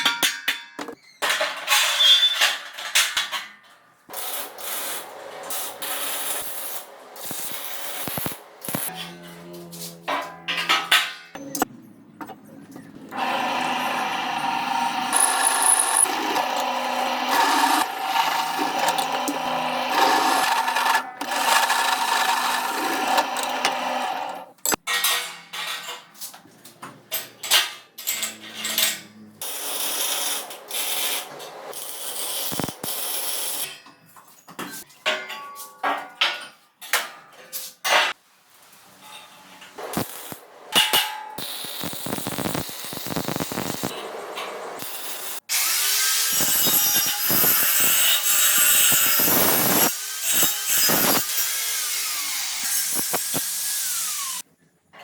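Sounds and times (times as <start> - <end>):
knocks and clanks of tool work: 0.0 - 4.6, 10.0 - 31.7, 33.6 - 38.2, 38.9 - 41.5.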